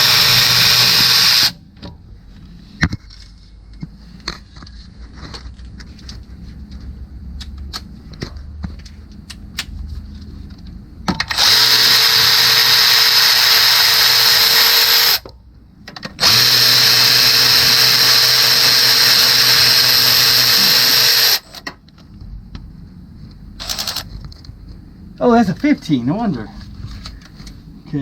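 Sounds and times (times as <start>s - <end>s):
power tool running: 0.0s - 1.6s, 11.3s - 15.2s, 16.2s - 21.6s.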